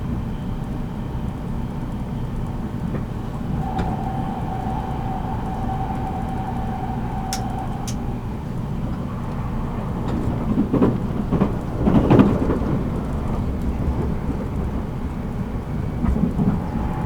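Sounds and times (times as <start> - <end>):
train wheels rumbling on track: 0.2 - 17.0
steady high tone: 3.2 - 8.4.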